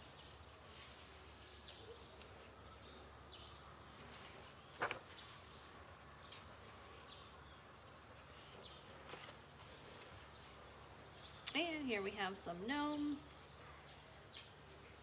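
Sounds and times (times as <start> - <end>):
paper pages turning: 4.0 - 7.0, 8.3 - 11.4.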